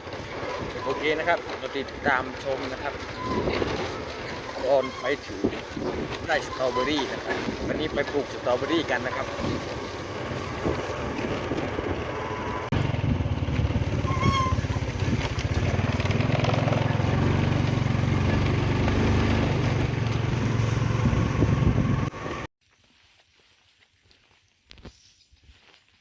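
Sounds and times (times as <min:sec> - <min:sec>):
motorcycle engine running: 0:00.0 - 0:22.5
wind noise on microphone: 0:03.2 - 0:04.1, 0:05.3 - 0:08.2, 0:09.1 - 0:16.1, 0:20.3 - 0:22.4.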